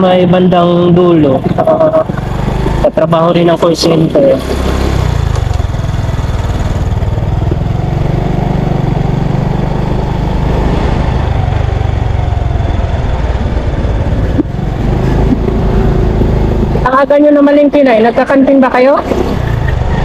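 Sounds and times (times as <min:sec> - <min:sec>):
motorcycle engine running: 0:00.0 - 0:20.0
wind rushing on microphone: 0:09.9 - 0:17.0.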